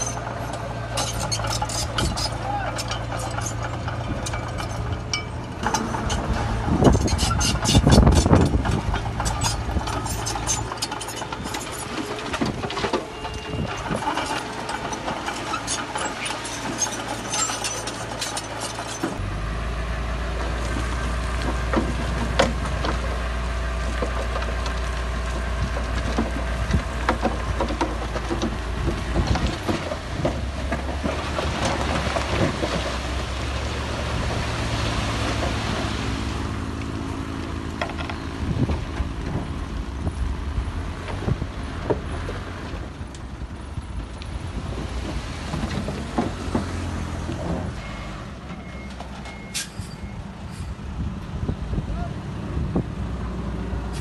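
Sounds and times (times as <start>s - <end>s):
clattering and knocking: 0.0s - 19.2s, 21.4s - 23.2s, 23.8s - 33.2s, 37.7s - 39.6s, 44.8s - 47.8s
heavy diesel machinery running: 0.0s - 54.0s.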